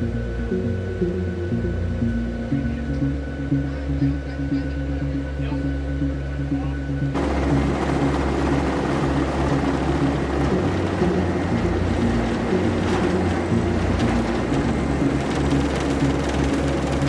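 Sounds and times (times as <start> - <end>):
jet engines rushing: 7.1 - 17.0.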